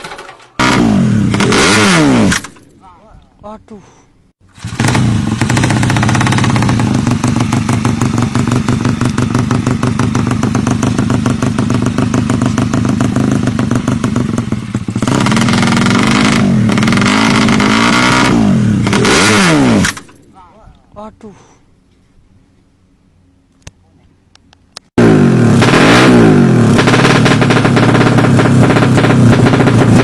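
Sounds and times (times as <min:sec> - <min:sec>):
motorcycle engine rattling and revving: 0:00.0 - 0:02.6, 0:04.4 - 0:20.2, 0:24.9 - 0:30.0.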